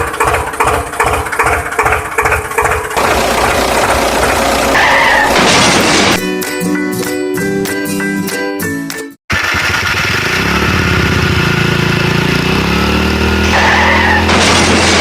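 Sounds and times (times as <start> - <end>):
motor vehicle engine running: 0.0 - 6.2, 9.3 - 15.0
background music: 6.2 - 9.2.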